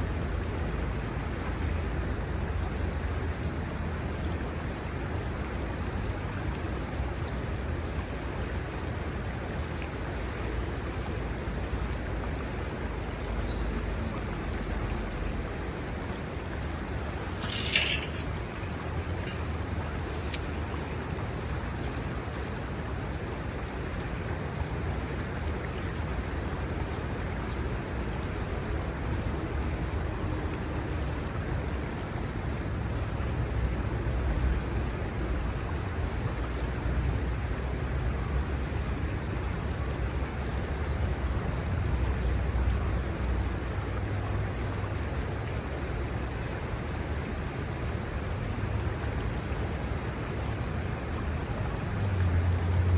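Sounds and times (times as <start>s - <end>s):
river water rushing: 0.0s - 52.9s.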